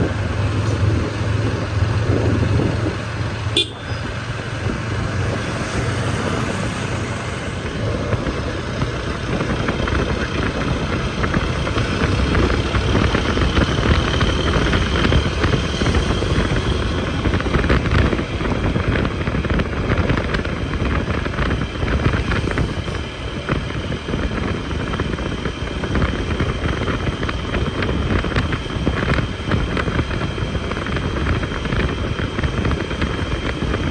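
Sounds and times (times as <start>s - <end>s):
motorcycle engine running: 0.0s - 33.9s
wind noise on microphone: 0.0s - 33.9s
traffic horns: 3.4s - 4.4s.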